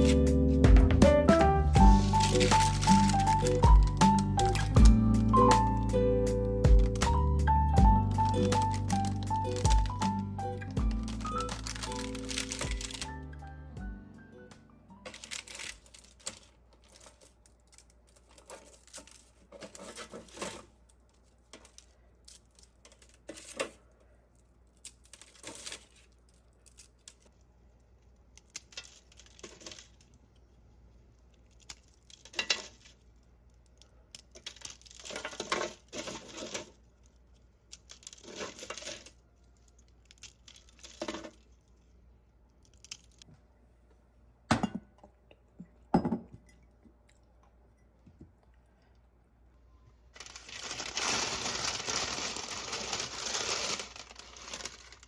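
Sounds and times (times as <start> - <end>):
rustling and scraping strokes: 18.1 - 22.0.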